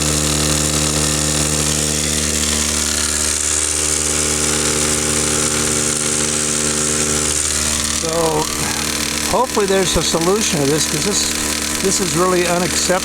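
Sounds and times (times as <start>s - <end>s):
machine motor humming: 0.0s - 13.0s.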